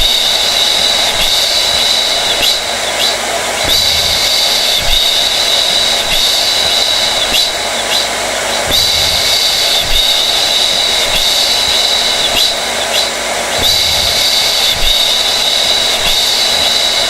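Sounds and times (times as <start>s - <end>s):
hair dryer running: 0.0s - 17.0s.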